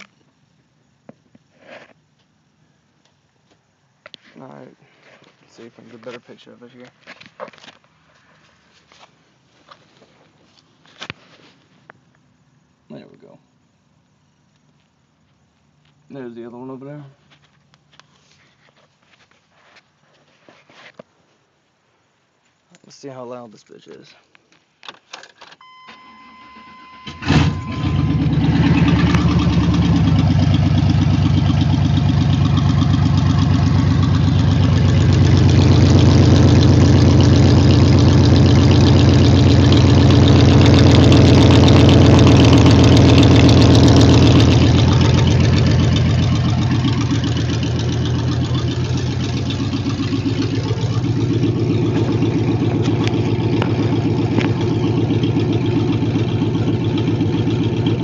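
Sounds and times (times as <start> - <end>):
engine cranking: 27.0 - 58.0
loud open exhaust engine running: 27.1 - 58.0.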